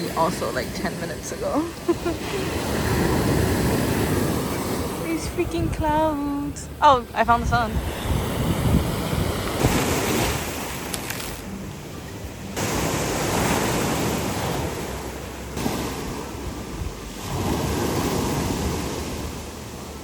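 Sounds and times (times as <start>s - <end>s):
wind on microphone: 0.0s - 11.5s
ocean surf washing on shore: 0.0s - 20.0s.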